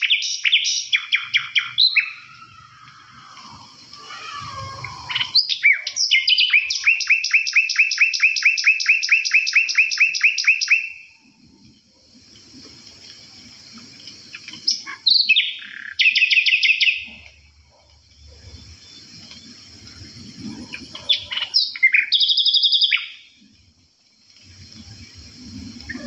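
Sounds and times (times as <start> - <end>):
songbird rapid trill: 0.0 - 11.2, 14.3 - 17.3, 18.2 - 23.4.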